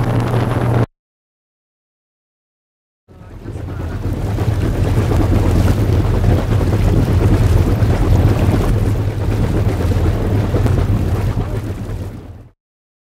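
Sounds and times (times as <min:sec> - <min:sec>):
boat motor running: 0:00.0 - 0:00.9, 0:03.1 - 0:12.6
water around hull: 0:00.0 - 0:00.9, 0:03.1 - 0:12.6
wind buffeting microphone: 0:00.0 - 0:00.9, 0:03.2 - 0:12.4.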